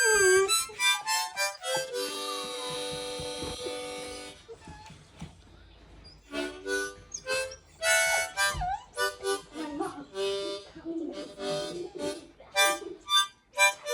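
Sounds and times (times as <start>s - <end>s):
puppy howling: 0.0s - 0.6s
harmonica notes and chords: 0.0s - 4.4s, 6.3s - 13.9s.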